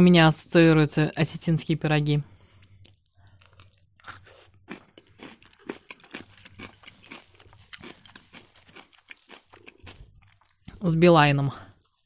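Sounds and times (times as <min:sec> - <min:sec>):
person chewing with wet smacks: 0:02.6 - 0:10.8.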